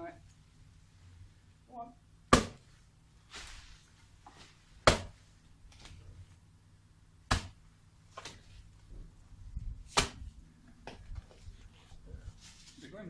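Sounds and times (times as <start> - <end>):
hand tool chopping roots: 2.3 - 2.6, 4.8 - 5.2, 7.3 - 7.6.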